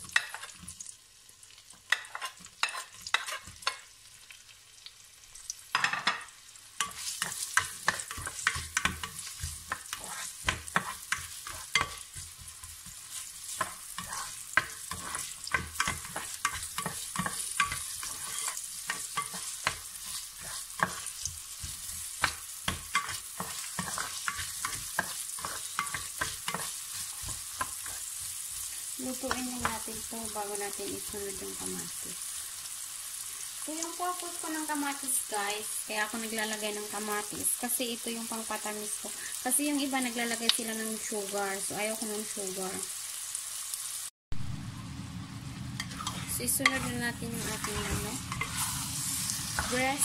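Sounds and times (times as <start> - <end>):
vegetables frying in hot oil: 0.0 - 50.0
spatula scraping a steel pot: 2.0 - 3.8, 6.8 - 12.0, 13.5 - 21.2, 22.9 - 28.0, 45.8 - 50.0.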